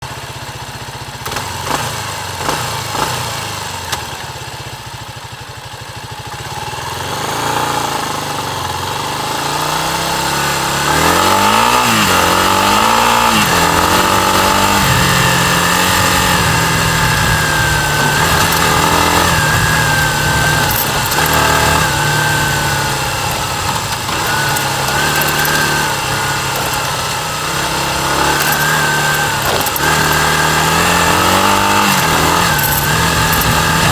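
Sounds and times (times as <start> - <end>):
motorcycle engine revving: 0.0 - 33.9
engine knocks: 14.1 - 33.9.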